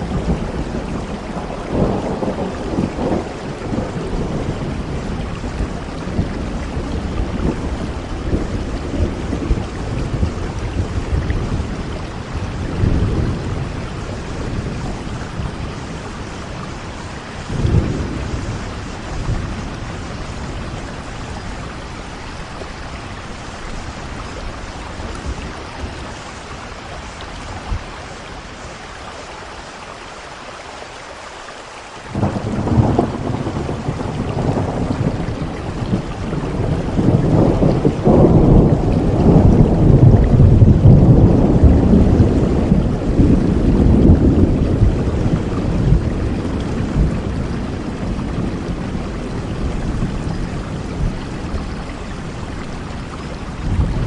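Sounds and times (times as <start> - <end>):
loud peal of thunder: 0.0 - 21.7, 32.1 - 52.4, 53.1 - 54.0
rolling thunder: 0.0 - 28.2, 32.1 - 54.0
heavy rain falling: 0.0 - 54.0.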